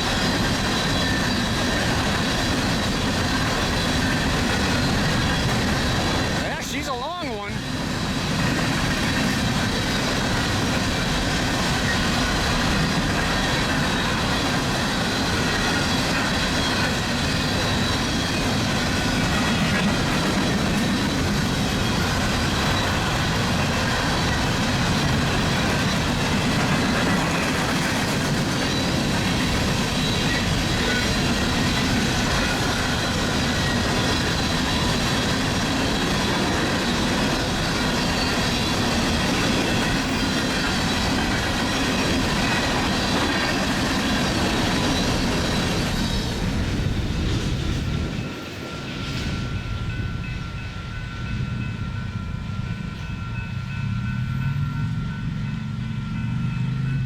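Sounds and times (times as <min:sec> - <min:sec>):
train cars rolling on rails: 0:00.0 - 0:57.0.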